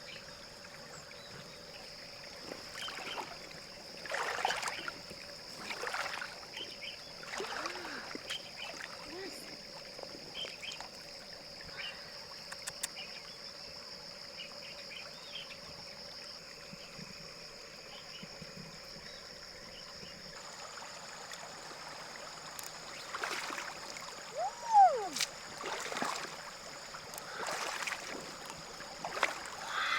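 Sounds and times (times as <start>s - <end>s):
river water flowing: 0.1s - 12.6s, 20.4s - 29.9s.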